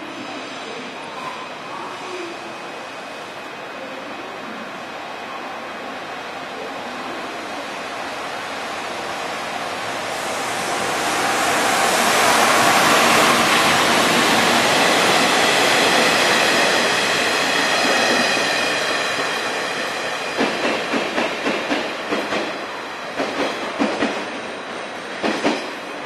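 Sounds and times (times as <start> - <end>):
train wheels rushing on rails: 6.2 - 26.0.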